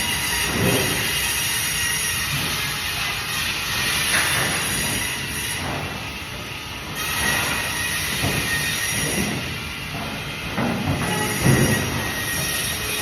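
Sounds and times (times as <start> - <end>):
high squeal from saw blade: 11.0 - 13.0.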